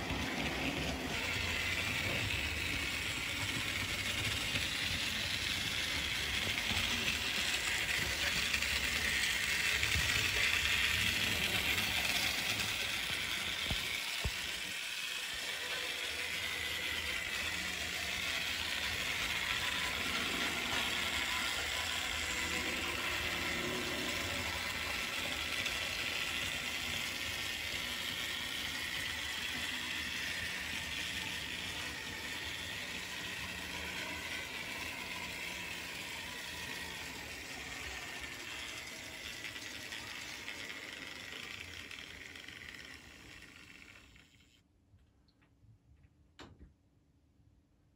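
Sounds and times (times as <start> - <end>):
model locomotive motor whirring: 0.0 - 44.6
click: 45.0 - 46.7.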